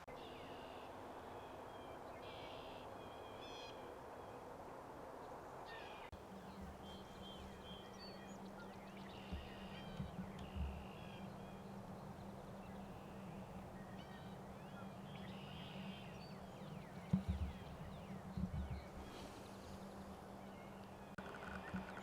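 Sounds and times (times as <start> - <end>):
birds chirping: 5.2 - 22.0
low thumps: 16.5 - 19.2.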